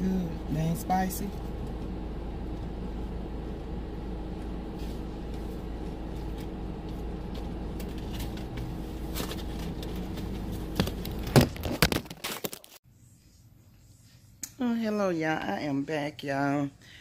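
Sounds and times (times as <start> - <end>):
car engine idling hum: 0.0 - 11.7.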